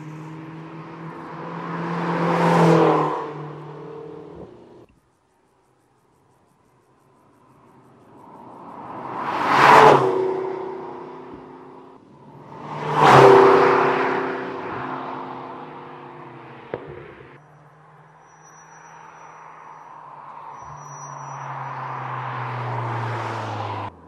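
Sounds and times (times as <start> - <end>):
sharp exhaust pop: 16.7 - 17.3.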